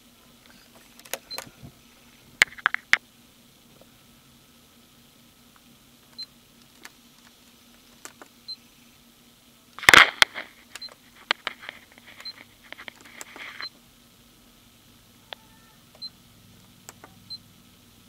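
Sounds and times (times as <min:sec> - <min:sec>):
faint steady hum: 0:00.0 - 0:18.0
rustling: 0:09.8 - 0:13.7.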